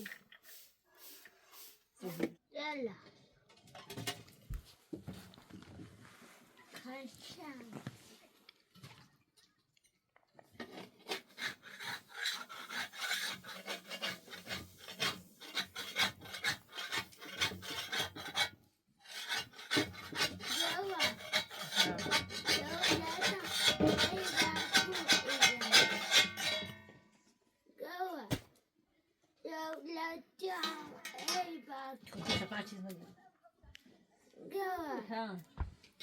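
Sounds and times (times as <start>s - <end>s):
rasping scraping strokes: 10.6s - 26.8s.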